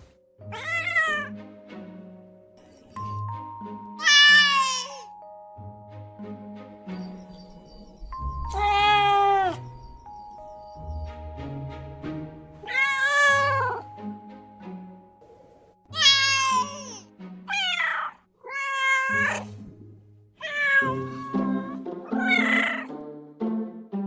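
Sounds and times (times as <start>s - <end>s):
background music: 0.0s - 24.0s
kitten meowing: 4.0s - 5.0s, 8.4s - 9.6s, 15.9s - 19.5s, 20.4s - 22.9s.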